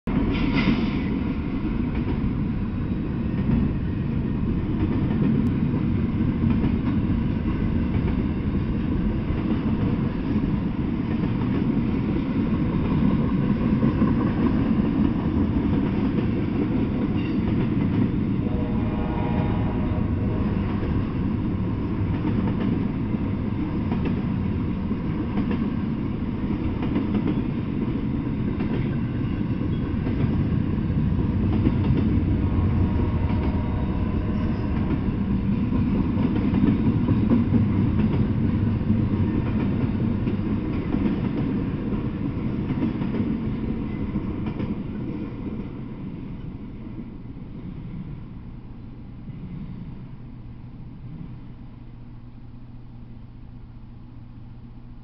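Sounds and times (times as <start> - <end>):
freight train rumble and rattle: 0.0 - 55.0.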